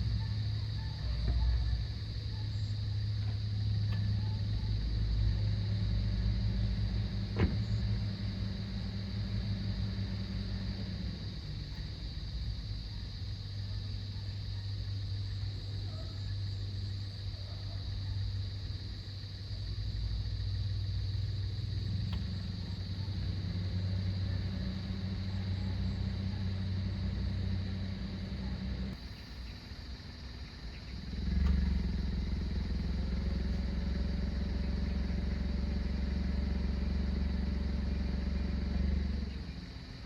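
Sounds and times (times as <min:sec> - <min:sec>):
low engine hum: 0:00.0 - 0:40.0.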